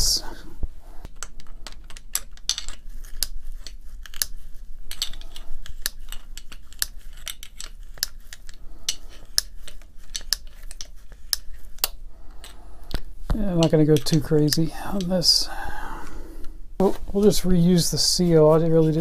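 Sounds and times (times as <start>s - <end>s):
metal parts and tools clinking: 1.2s - 15.5s.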